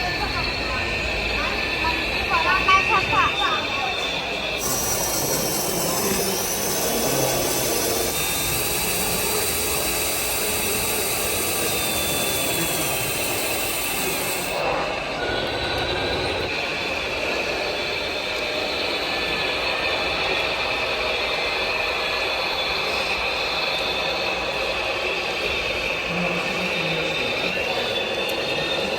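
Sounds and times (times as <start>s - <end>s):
electric motors whining: 0.2s - 14.8s
high hiss: 4.5s - 14.6s.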